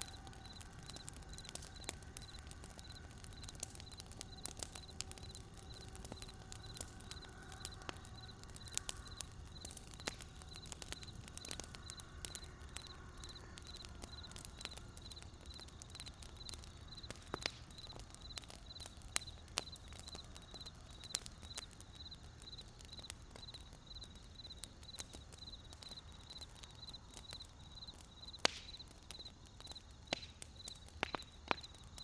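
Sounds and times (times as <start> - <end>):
campfire crackling and popping: 0.0 - 32.0
low rumble of fire: 0.0 - 32.0.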